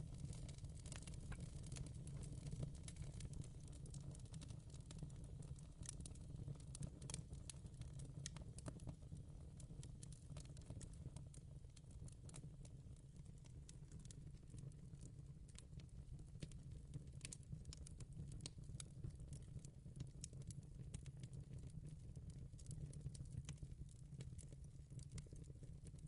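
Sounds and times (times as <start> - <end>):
fire crackling: 0.0 - 8.9.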